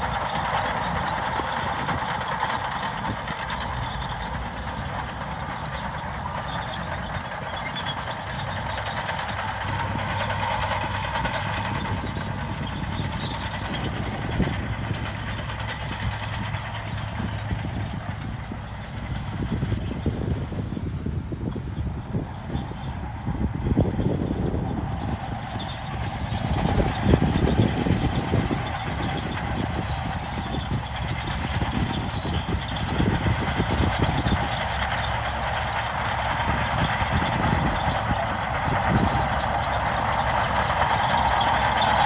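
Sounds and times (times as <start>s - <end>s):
heavy diesel engine running: 0.0s - 42.0s.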